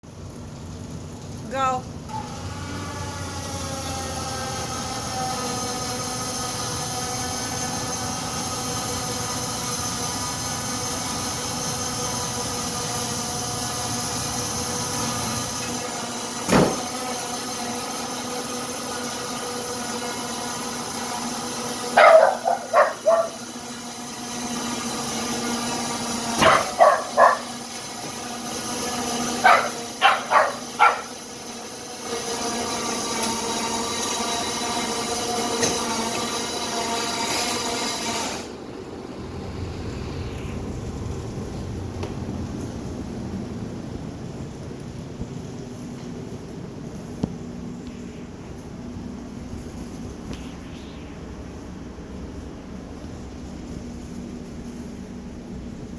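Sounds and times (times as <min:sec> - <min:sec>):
mechanical hum: 0:00.0 - 0:55.9
dog barking: 0:21.9 - 0:23.5, 0:26.4 - 0:27.6, 0:29.4 - 0:31.2.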